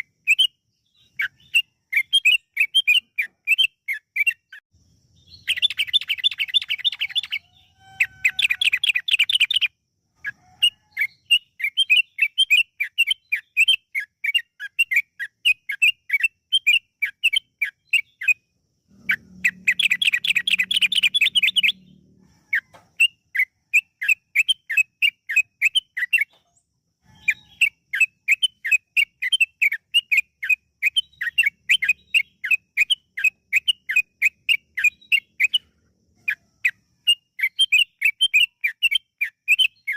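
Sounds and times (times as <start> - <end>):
bird whistling song: 0.0 - 4.6, 5.2 - 39.9
bird chattering: 19.0 - 26.4.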